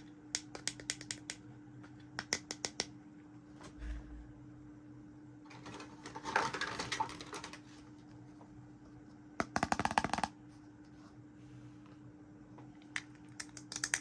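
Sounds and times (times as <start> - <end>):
plastic toy pieces clicking: 13.4 - 14.0.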